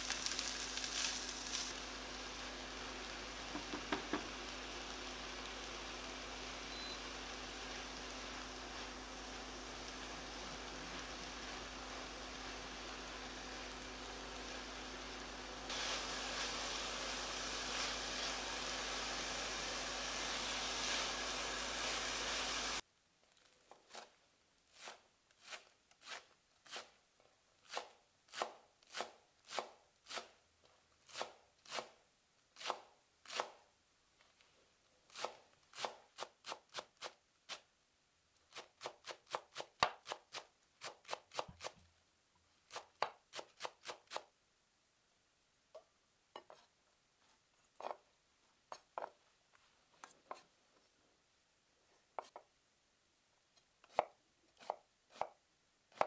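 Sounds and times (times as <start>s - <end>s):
steady hiss: 0.0s - 22.8s
knife chopping on cutting board: 3.5s - 4.4s.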